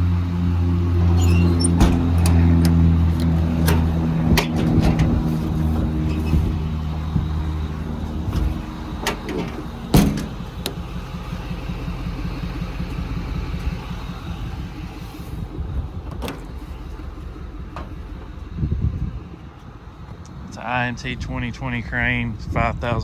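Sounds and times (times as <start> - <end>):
diesel engine running: 0.0 - 23.0
sharp clicks and knocks: 1.2 - 6.6, 8.2 - 10.9.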